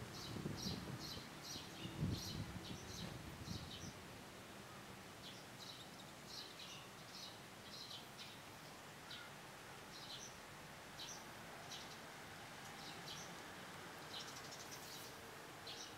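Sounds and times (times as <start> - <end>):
low outdoor hiss: 0.0 - 15.9
faint bird chirps: 5.3 - 9.3.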